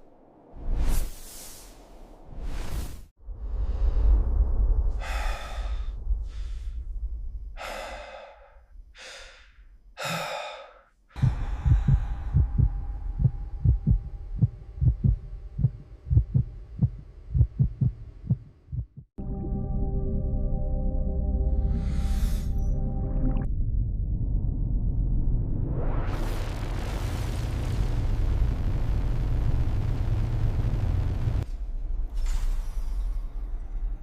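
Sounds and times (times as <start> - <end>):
person gasping for breath: 5.0 - 6.8, 7.6 - 12.7
rapid irregular low thumps: 11.2 - 19.1.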